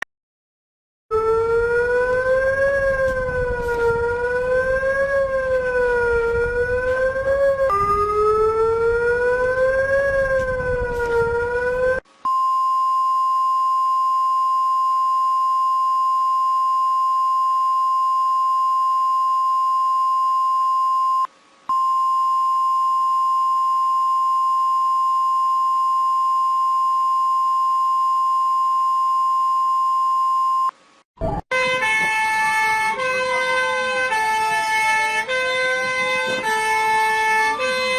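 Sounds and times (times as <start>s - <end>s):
wavering emergency siren: 1.1s - 12.0s, 31.2s - 37.9s.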